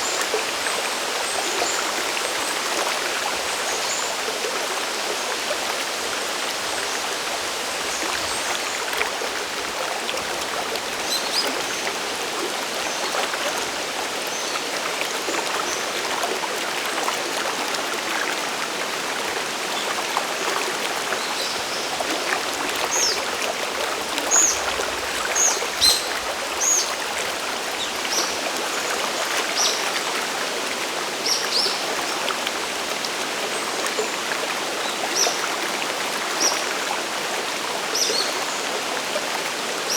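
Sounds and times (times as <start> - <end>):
stream and waterfall rushing: 0.0 - 39.9.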